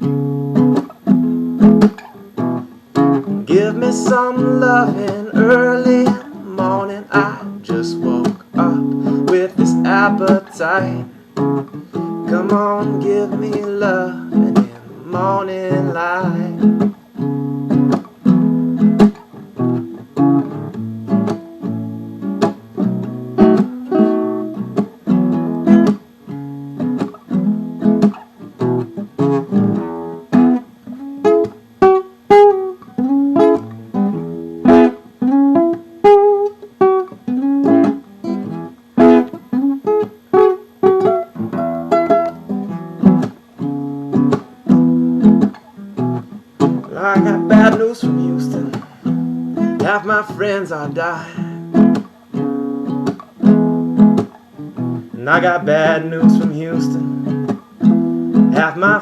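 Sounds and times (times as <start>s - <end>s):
acoustic guitar strumming blues: 0.0s - 59.0s.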